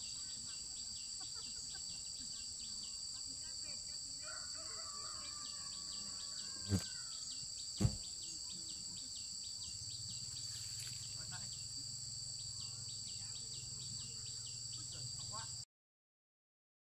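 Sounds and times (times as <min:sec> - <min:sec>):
insects droning: 0:00.0 - 0:15.6
sharp knocks: 0:07.8 - 0:08.0.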